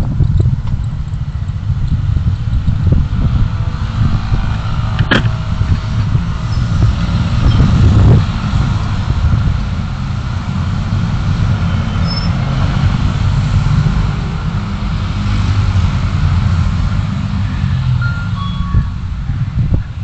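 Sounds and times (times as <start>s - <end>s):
car engine and road rumble: 0.0s - 20.0s
sharp click: 5.0s - 5.3s.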